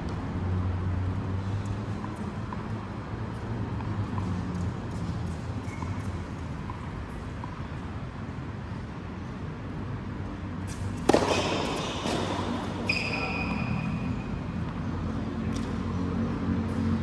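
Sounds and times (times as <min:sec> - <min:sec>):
shoe squeak: 0:05.6 - 0:06.2, 0:10.7 - 0:14.4
racket striking ball: 0:10.7 - 0:13.8.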